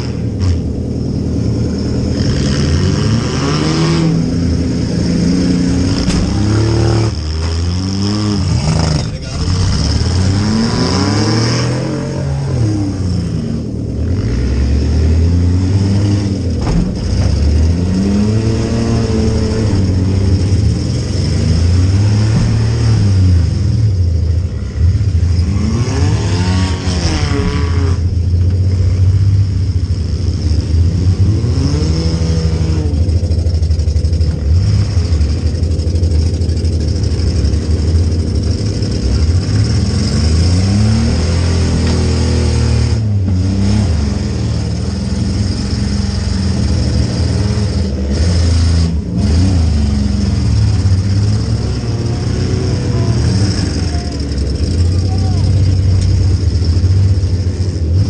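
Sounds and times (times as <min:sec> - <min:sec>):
car engine revving: 0:00.0 - 0:58.0
sharp knocks: 0:16.5 - 0:17.6.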